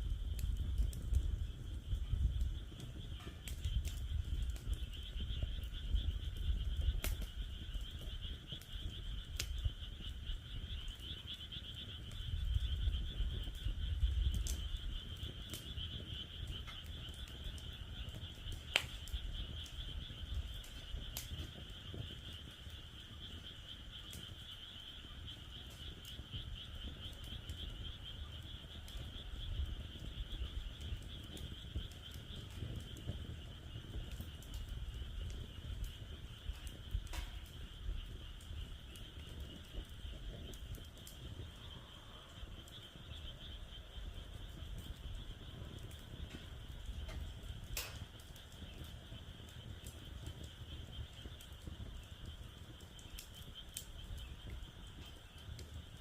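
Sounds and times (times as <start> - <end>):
wood fire crackling and popping: 0.0 - 56.0
chorus of frogs calling: 0.8 - 55.8.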